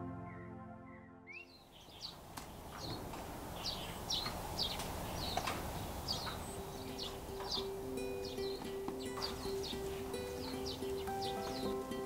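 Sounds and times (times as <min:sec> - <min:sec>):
music: 0:00.0 - 0:01.5, 0:06.6 - 0:12.0
bird chirping: 0:00.0 - 0:12.0
outdoor background hiss: 0:01.3 - 0:12.0.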